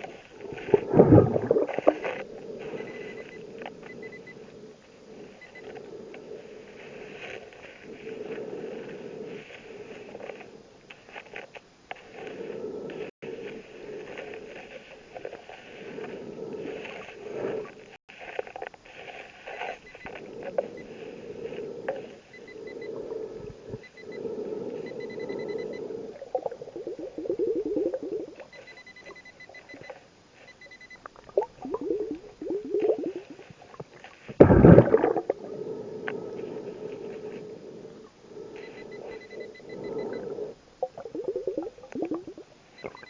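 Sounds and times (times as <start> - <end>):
diver breathing through regulator: 0.0 - 11.2, 12.0 - 43.0
exhaled bubbles underwater: 0.4 - 3.4, 24.8 - 28.5, 31.1 - 33.8, 34.4 - 43.0
faint high beeps: 2.7 - 4.4, 23.8 - 26.0, 27.1 - 33.3, 38.6 - 43.0.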